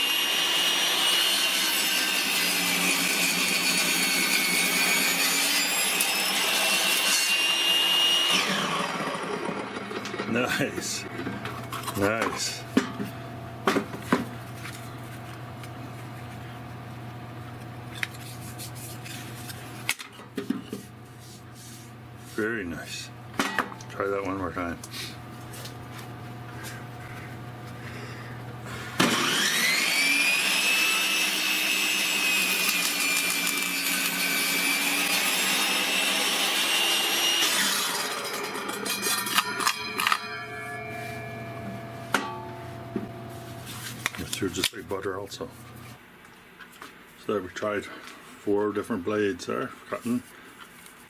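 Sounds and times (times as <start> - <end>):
table saw running: 0.0 - 11.7, 28.9 - 43.5.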